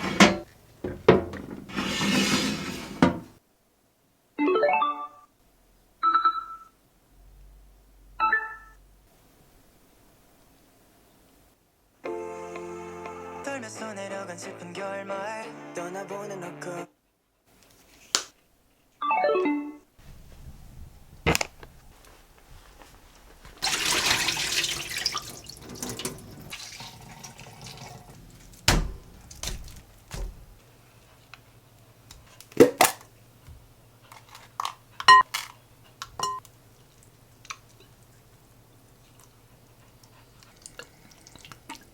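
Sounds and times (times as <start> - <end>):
running water: 23.6 - 30.6, 40.3 - 41.9.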